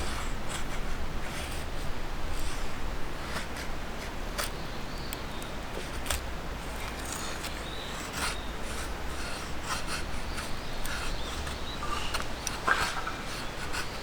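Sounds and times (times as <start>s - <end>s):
gear clicking and rubbing: 0.0s - 14.0s
faint bird chirps: 10.2s - 14.0s.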